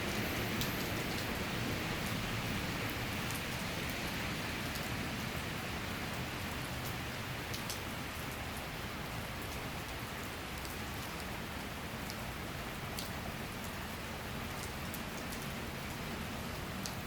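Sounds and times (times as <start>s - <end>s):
rain hissing: 0.0s - 6.4s
raindrop ticks: 0.1s - 1.3s, 2.8s - 5.0s, 6.2s - 8.4s, 12.9s - 13.8s, 14.4s - 17.0s.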